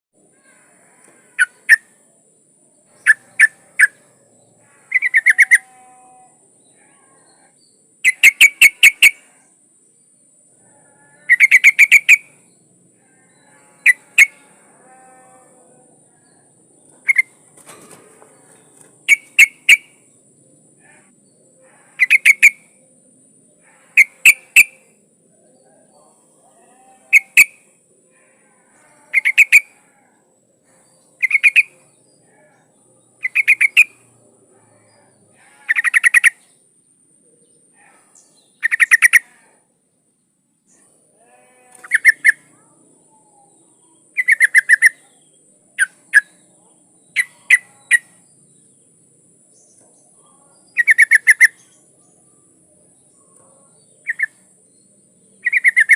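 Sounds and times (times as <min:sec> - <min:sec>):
bulbul calling: 0:01.4 - 0:01.9, 0:04.8 - 0:05.9, 0:08.0 - 0:09.2, 0:11.3 - 0:12.4, 0:17.0 - 0:17.4, 0:19.0 - 0:20.1, 0:22.0 - 0:22.7, 0:24.0 - 0:24.9, 0:27.1 - 0:27.7, 0:29.1 - 0:29.7, 0:31.2 - 0:31.8, 0:33.2 - 0:34.0, 0:35.5 - 0:36.4, 0:38.6 - 0:39.4, 0:41.8 - 0:42.4, 0:44.2 - 0:45.1, 0:50.8 - 0:51.7, 0:54.0 - 0:54.4, 0:55.4 - 0:55.9.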